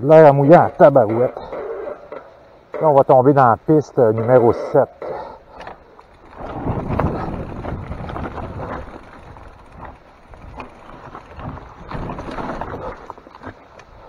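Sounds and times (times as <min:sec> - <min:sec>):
bike tyres over dirt and rocks: 0:00.0 - 0:14.0
wind on microphone: 0:06.3 - 0:13.0.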